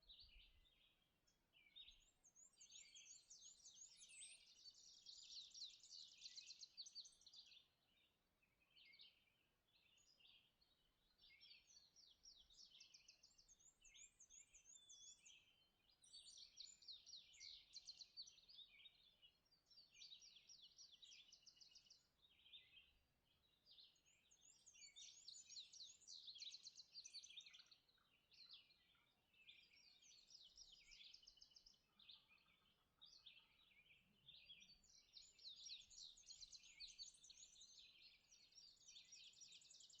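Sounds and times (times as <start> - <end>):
songbirds chirping and trilling: 0.0 - 40.0.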